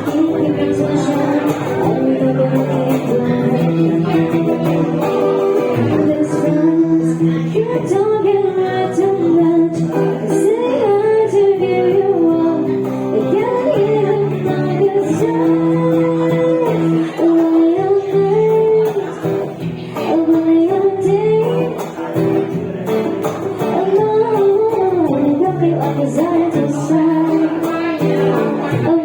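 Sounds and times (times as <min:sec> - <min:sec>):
plucked guitar: 0:00.0 - 0:29.0
woman singing: 0:00.0 - 0:29.0.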